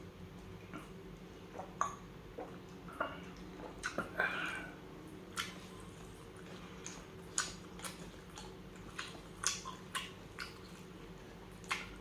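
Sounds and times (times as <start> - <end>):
chewing and mouth sounds: 1.5 - 4.2, 5.3 - 12.0.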